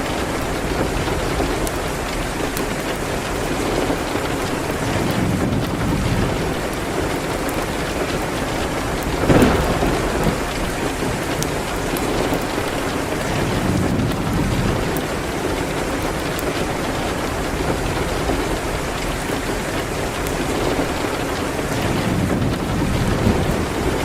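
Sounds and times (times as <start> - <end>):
fireplace crackles: 0.0 - 24.0
steady rain: 0.0 - 24.0
thunder: 8.8 - 15.7, 21.7 - 24.0.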